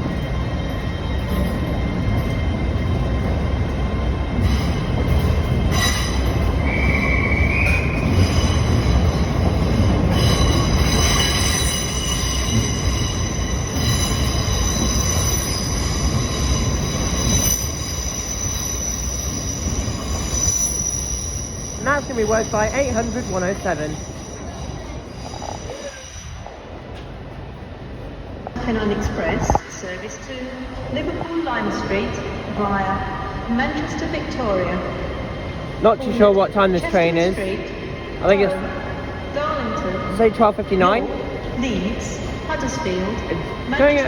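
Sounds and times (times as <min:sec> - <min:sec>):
train wheels squealing: 0:00.0 - 0:26.8
low train rumble: 0:00.0 - 0:44.0.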